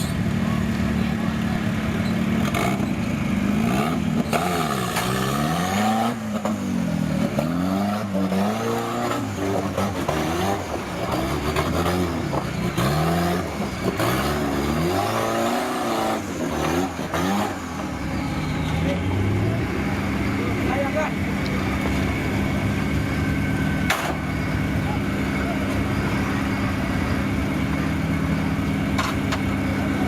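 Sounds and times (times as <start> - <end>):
off-road vehicle engine revving: 0.0 - 30.0.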